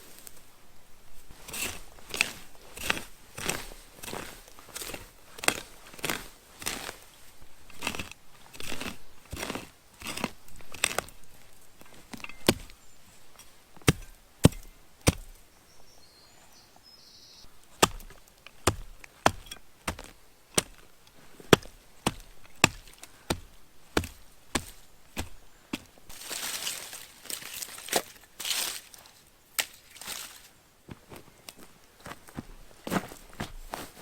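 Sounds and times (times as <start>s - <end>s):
wood being chopped: 13.8s - 15.4s, 17.7s - 20.8s, 21.5s - 25.9s.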